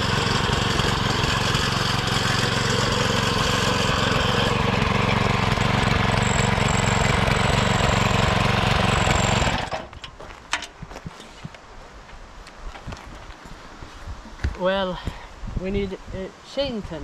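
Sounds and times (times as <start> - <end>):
lawn mower engine running: 0.0 - 10.2.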